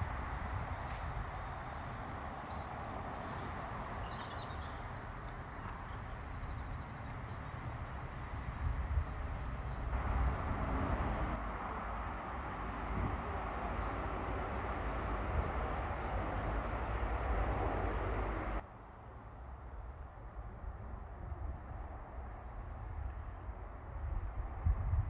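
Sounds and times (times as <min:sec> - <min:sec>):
birds chirping: 0:01.4 - 0:08.4, 0:11.4 - 0:12.2.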